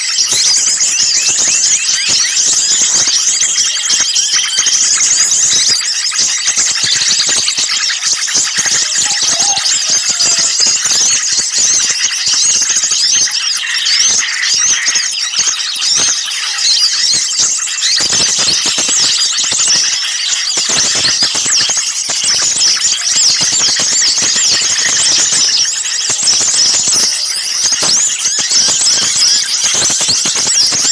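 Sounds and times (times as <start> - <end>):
small songbirds chirping: 0.0 - 30.9.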